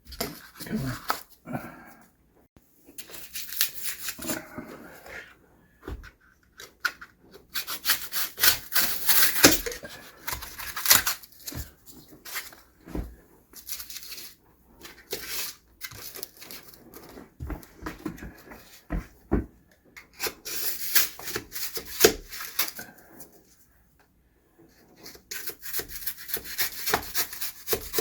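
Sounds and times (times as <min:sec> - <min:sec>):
styrofoam rubbing and scraping: 0:02.9 - 0:05.1, 0:07.4 - 0:12.9, 0:20.1 - 0:23.4, 0:24.7 - 0:28.0.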